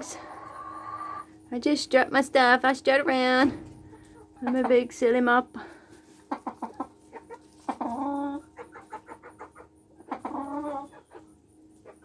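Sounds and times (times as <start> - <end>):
drawn-out chicken calls: 0.0 - 1.5, 5.9 - 12.0
chickens clucking: 0.0 - 12.0.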